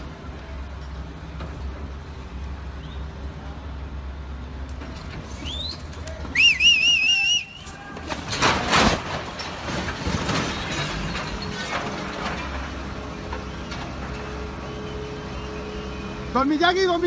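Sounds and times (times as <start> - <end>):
low engine rumble: 0.0 - 17.0
loud high whistle: 5.4 - 7.6.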